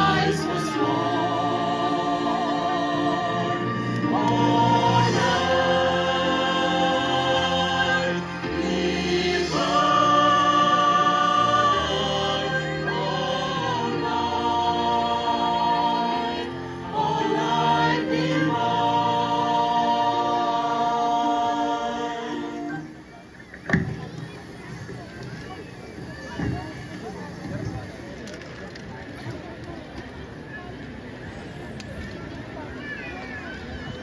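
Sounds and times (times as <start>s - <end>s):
choir singing sacred piece: 0.0s - 23.2s.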